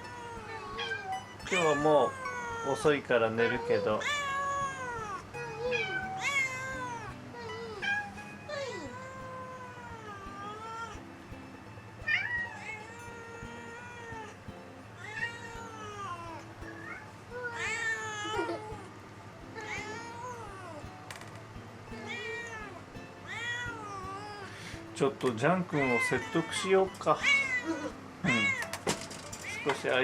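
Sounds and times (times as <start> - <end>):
cat meowing: 0.0 - 11.0, 12.0 - 14.4, 15.0 - 18.9, 19.6 - 20.8, 22.0 - 24.6, 25.7 - 30.0
faint background music: 0.0 - 30.0.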